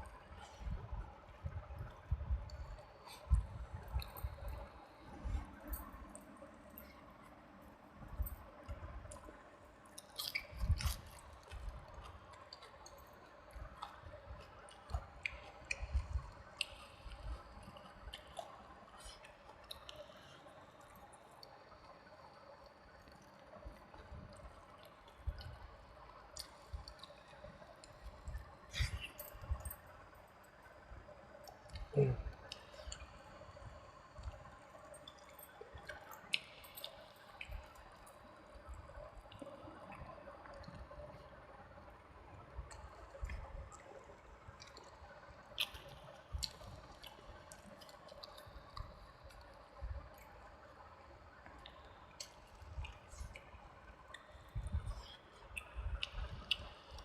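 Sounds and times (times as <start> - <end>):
wet chewing sounds: 9.9 - 21.6, 23.0 - 29.8, 42.0 - 50.4, 51.4 - 57.0
mouth smacks and clicks: 55.5 - 57.0.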